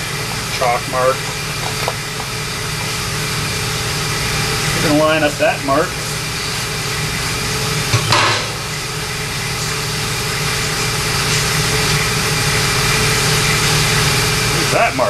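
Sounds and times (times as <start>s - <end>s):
shop machinery humming: 0.0s - 15.0s
sharp metal clank: 7.9s - 8.8s.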